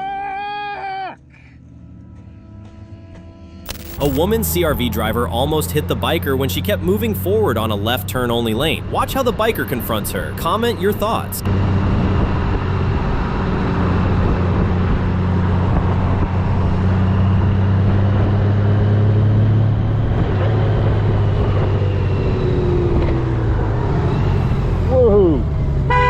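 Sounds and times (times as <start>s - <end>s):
road noise: 1.2s - 26.0s
wind noise: 11.4s - 18.7s.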